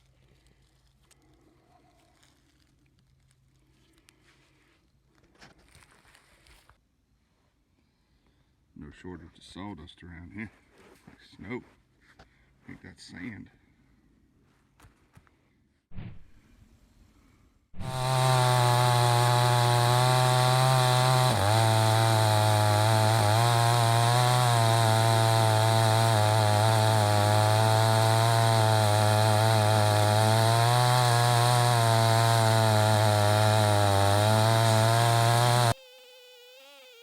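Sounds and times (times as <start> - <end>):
chainsaw cutting log: 17.8 - 37.0.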